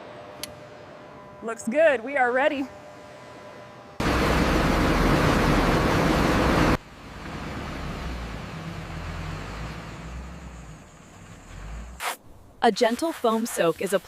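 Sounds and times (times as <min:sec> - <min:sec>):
low engine rumble: 0:00.0 - 0:12.6
heavy vehicle road and engine noise: 0:04.0 - 0:12.0.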